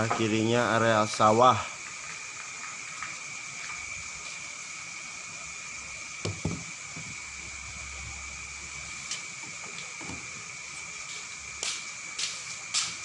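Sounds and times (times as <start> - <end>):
constant rushing hiss: 0.0 - 13.0
soft knocks: 6.2 - 7.2.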